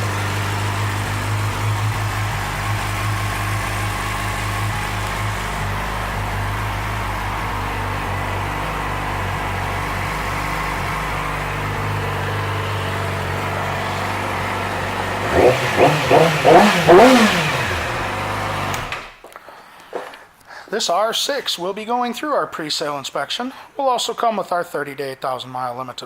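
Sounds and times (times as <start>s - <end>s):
motorcycle engine idling and revving: 0.0s - 19.2s.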